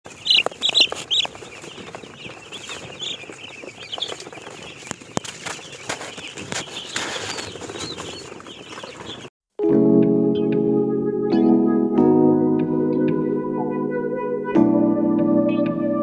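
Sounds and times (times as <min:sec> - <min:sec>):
chickens chattering: 0:00.1 - 0:09.3
high chicken calls: 0:00.1 - 0:09.3.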